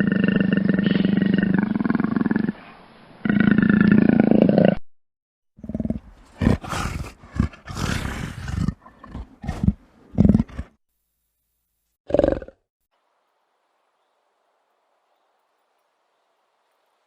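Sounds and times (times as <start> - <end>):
big cat roaring: 0.0 - 2.6, 5.6 - 10.7.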